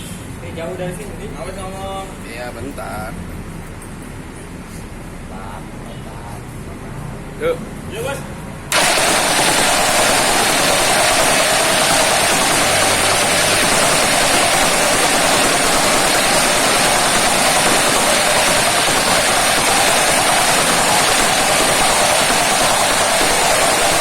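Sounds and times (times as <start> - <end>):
tamping rammer running: 8.7 - 24.0.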